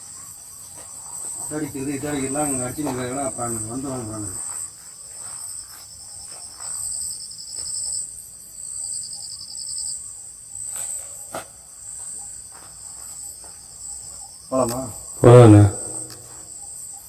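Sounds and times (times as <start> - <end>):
crickets chirping: 0.0 - 17.0
insect trill: 0.0 - 17.0.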